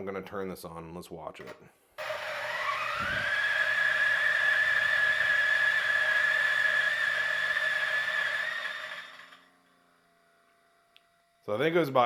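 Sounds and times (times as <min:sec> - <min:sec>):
coffee grinder motor whine: 0:02.0 - 0:11.4.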